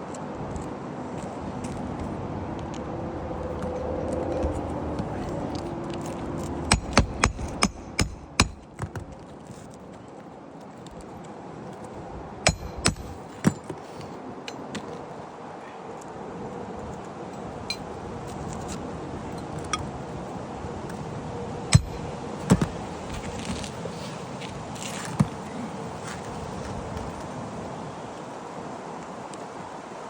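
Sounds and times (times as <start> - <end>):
steady outdoor hiss: 0.0 - 30.0
hammer strikes on roof: 6.7 - 9.0, 12.5 - 13.8, 21.8 - 22.8.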